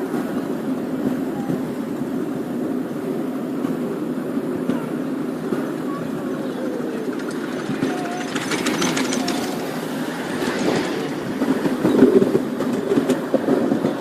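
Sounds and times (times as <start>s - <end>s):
miniature train rumbling: 0.0s - 14.0s
wheels clicking over rail joints: 3.6s - 14.0s.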